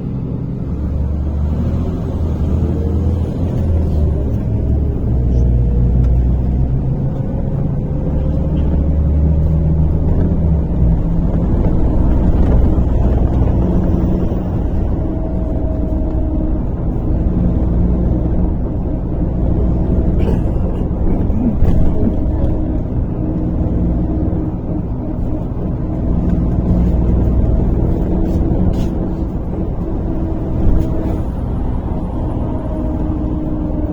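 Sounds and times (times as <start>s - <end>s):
bus engine rumble: 0.0s - 33.9s.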